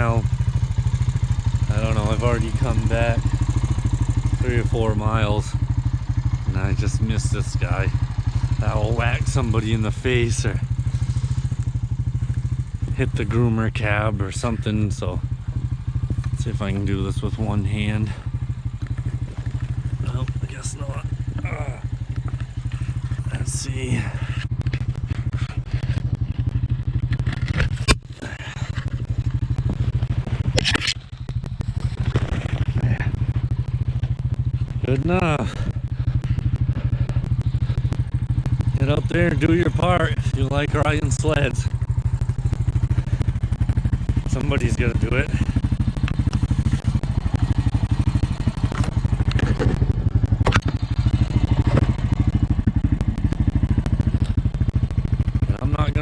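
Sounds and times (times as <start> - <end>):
quad bike engine idling: 0.0 - 56.0
crackling distortion: 17.6 - 56.0
sharp clicks: 18.5 - 20.4, 21.1 - 23.3, 24.4 - 38.9, 45.4 - 55.6.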